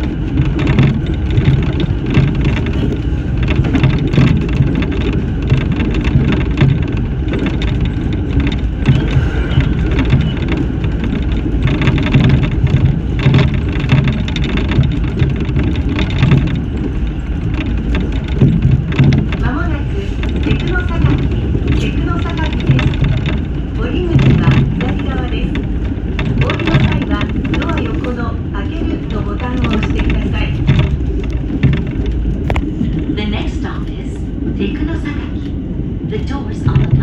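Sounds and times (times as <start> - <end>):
train knocks and clatter: 0.0 - 37.0
train wheels rumbling on rail: 0.0 - 37.0.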